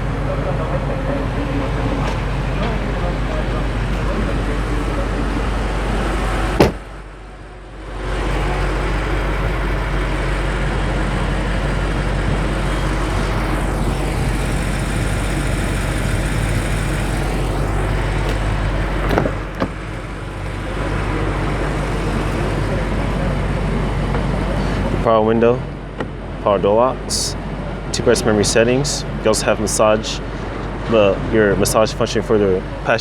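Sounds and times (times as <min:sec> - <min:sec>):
traffic noise with low hum: 0:00.0 - 0:33.0
sharp knock: 0:06.6 - 0:06.9.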